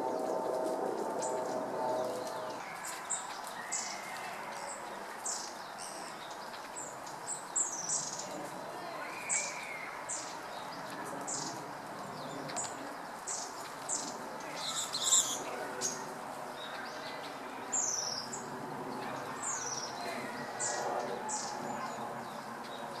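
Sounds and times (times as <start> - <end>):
background murmur: 0.0 - 23.0
flock of birds calling: 12.3 - 23.0.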